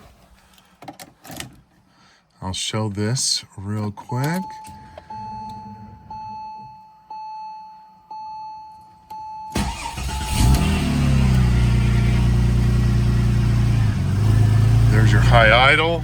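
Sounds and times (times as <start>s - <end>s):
car warning chime dinging: 4.0s - 10.3s
car engine starting and idling: 9.5s - 16.0s.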